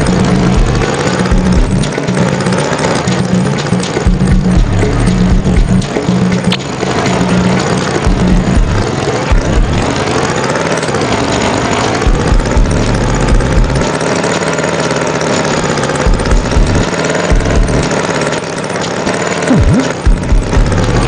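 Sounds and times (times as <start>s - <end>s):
low thumps: 0.0s - 2.0s, 3.1s - 9.9s, 12.1s - 13.9s, 16.1s - 17.9s, 19.5s - 21.0s
tractor engine running: 0.0s - 21.0s.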